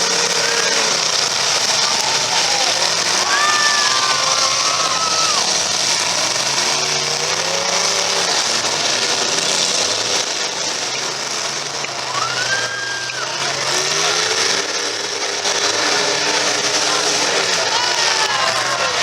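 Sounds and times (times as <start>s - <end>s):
car engines revving: 0.0s - 19.0s
high squeal: 0.4s - 5.6s, 12.0s - 14.0s.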